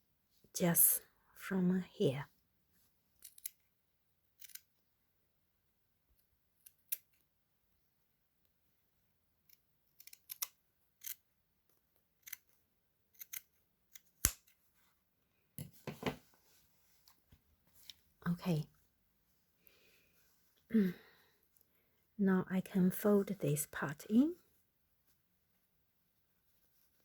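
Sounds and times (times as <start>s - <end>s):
scissors snipping fabric: 13.2s - 14.6s.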